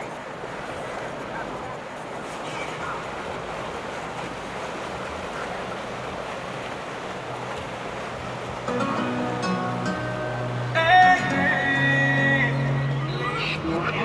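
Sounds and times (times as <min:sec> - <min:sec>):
moving water: 0:00.0 - 0:14.0.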